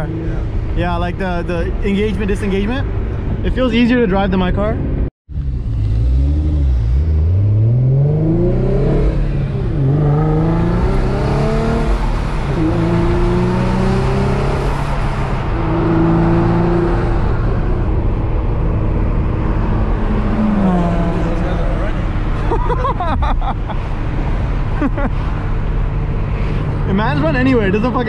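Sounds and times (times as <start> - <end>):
car engine accelerating through gears: 5.3 - 22.4.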